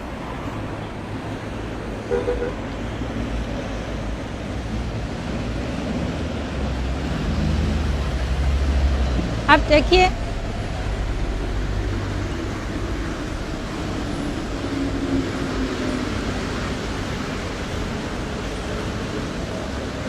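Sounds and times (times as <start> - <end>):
train rumble and hiss: 0.0 - 20.0
faint low hum: 8.2 - 17.4.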